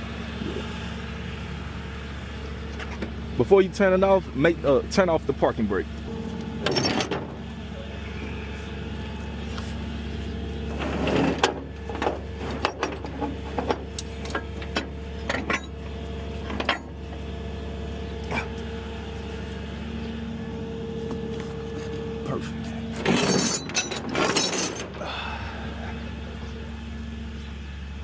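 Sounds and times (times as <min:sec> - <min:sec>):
vehicle engine idling: 0:00.0 - 0:28.0
sharp clanks and clicks: 0:06.1 - 0:07.5, 0:10.7 - 0:17.2, 0:22.9 - 0:25.0.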